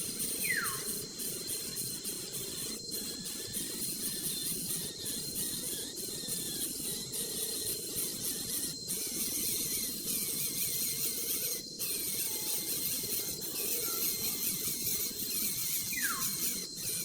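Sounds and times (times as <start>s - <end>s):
nestling birds begging: 0.3s - 1.1s, 8.0s - 17.0s.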